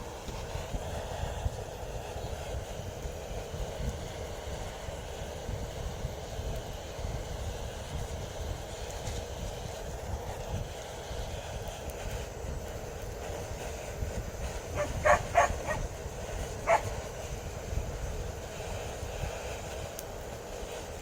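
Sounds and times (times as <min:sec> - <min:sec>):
steady low rumble: 0:14.0 - 0:18.1
dog barking: 0:14.8 - 0:15.9, 0:16.6 - 0:17.0.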